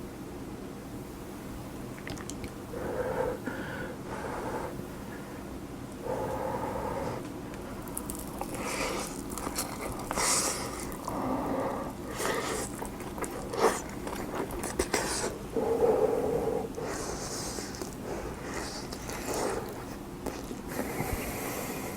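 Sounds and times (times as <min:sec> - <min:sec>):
wet chewing and mouth sounds: 0:01.9 - 0:02.6, 0:07.8 - 0:15.5, 0:16.7 - 0:21.3.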